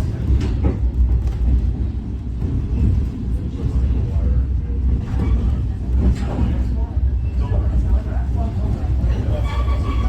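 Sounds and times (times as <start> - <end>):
train rumbling: 0.0 - 10.0.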